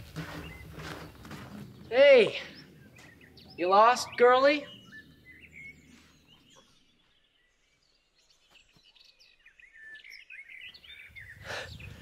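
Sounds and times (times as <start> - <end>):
bird chirps and warbling calls: 0.3 - 12.0.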